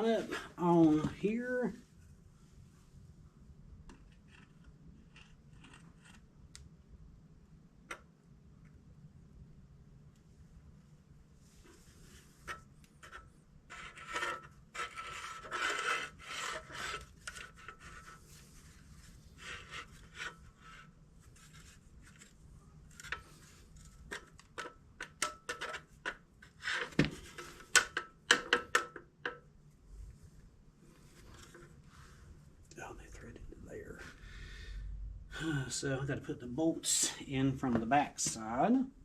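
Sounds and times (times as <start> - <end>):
metal scraping on metal: 12.1 - 18.4.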